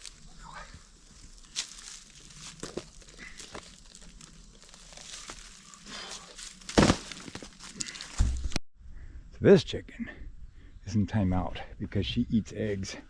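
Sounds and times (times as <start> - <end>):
bark tearing off a log: 6.6 - 8.2.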